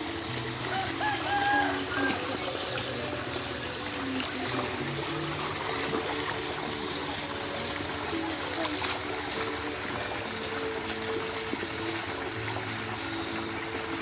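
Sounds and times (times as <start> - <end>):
background music: 0.0 - 14.0
stream water flowing: 0.0 - 14.0.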